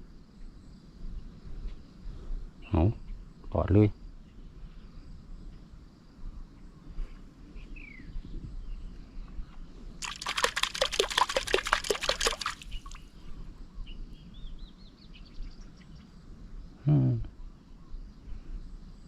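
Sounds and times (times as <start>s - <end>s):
water splashing strokes: 10.0s - 13.0s.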